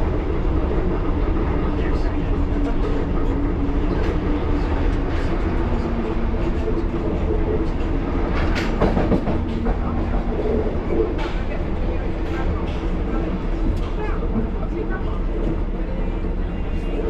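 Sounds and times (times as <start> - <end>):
train rumble and rattle: 0.0 - 17.0
train wheels clattering: 7.6 - 14.6.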